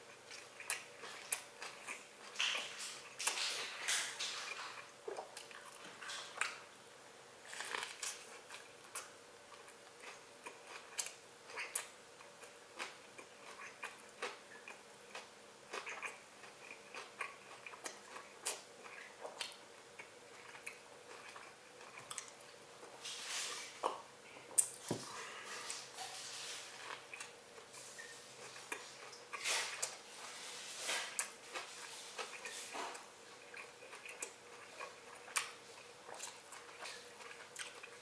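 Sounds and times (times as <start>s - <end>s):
chewing a sandwich: 0.0s - 6.7s, 7.4s - 38.0s.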